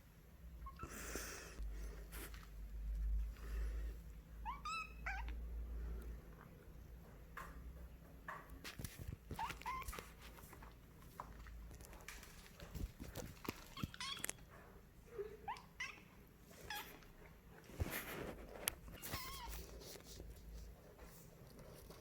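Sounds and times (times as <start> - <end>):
kitten meowing: 4.4 - 5.3, 19.0 - 19.6
light clicks and rustles: 6.4 - 14.7.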